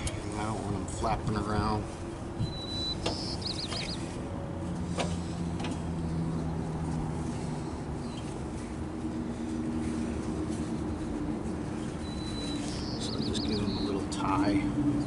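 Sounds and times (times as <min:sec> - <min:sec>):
vehicle engine idling: 0:00.0 - 0:15.0
high chirping: 0:02.4 - 0:04.2, 0:11.8 - 0:14.5.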